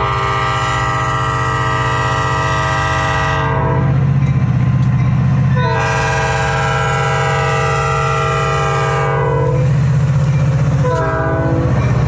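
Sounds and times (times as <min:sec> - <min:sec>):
train air horn chord: 0:00.0 - 0:04.0, 0:05.6 - 0:09.6, 0:10.8 - 0:11.7
locomotive rumble: 0:00.0 - 0:12.0.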